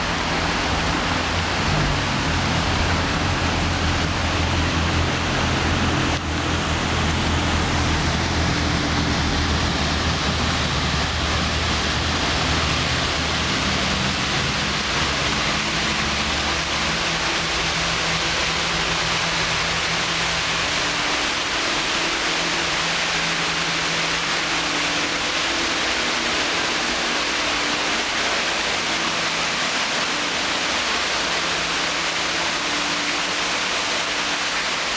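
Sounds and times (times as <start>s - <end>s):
low hum: 0.0s - 21.6s
waterfall pouring: 0.0s - 34.9s.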